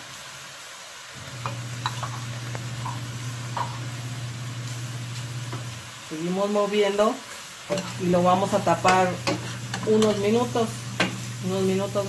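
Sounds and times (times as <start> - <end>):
food sizzling in a pot: 0.0 - 12.0
spoon scraping a pot: 1.4 - 3.9, 7.7 - 10.4.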